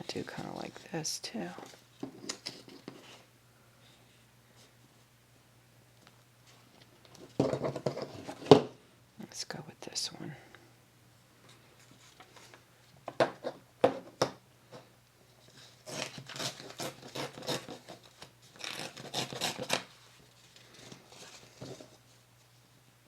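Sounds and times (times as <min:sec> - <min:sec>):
paper rustling and scraping: 0:15.4 - 0:22.6.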